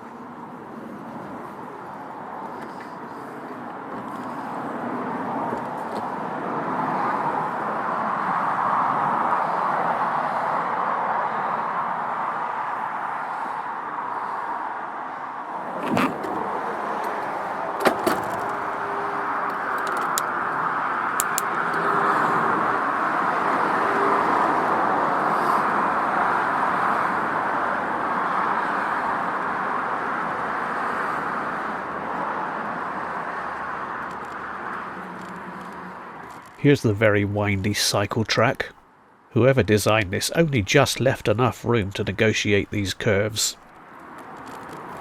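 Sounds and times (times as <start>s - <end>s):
road traffic noise: 0.0s - 45.0s
sharp clicks: 19.5s - 20.4s, 21.2s - 21.8s.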